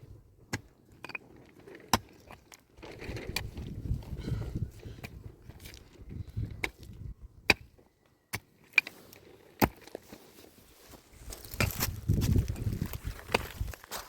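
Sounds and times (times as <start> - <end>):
scraping and shuffling: 8.9 - 14.0.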